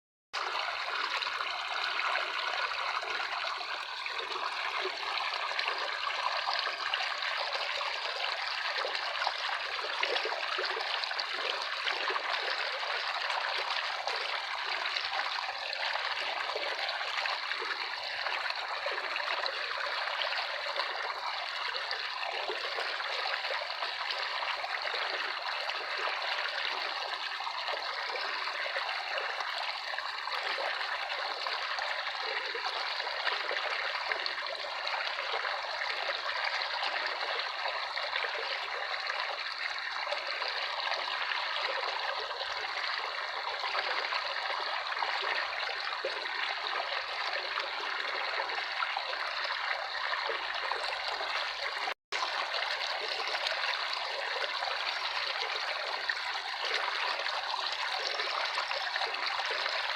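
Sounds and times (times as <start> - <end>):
water trickling: 0.4 - 59.9.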